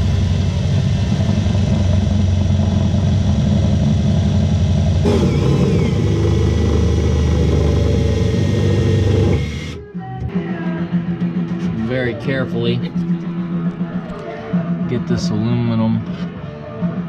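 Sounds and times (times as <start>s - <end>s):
power drill cutting metal: 5.0s - 9.8s.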